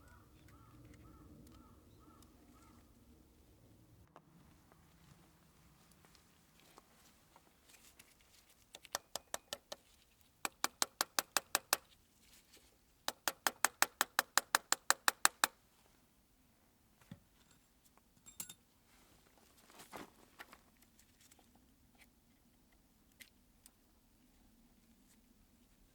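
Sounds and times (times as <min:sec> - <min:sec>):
sharp mechanical clicks: 0:10.5 - 0:11.9, 0:13.1 - 0:15.6.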